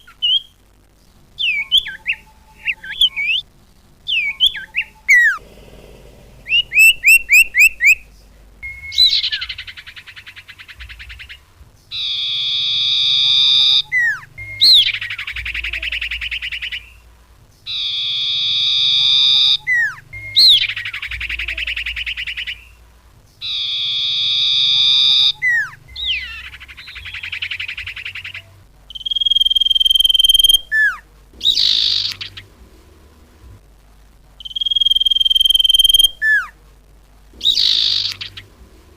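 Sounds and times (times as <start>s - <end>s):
harsh buzzy bird trills: 0.0s - 0.6s, 1.4s - 32.6s, 34.4s - 36.6s, 37.4s - 38.6s
songbird whistles and chirps: 0.0s - 0.6s, 1.4s - 5.4s, 6.4s - 32.5s, 34.4s - 36.6s, 37.4s - 38.5s.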